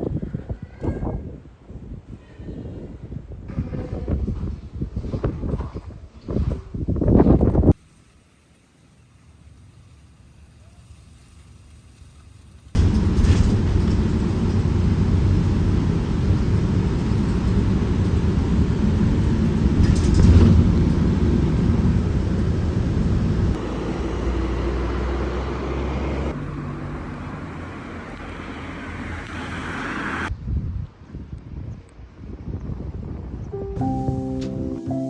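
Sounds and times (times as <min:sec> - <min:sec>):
vehicle rumble and travel noise: 0:09.4 - 0:30.5.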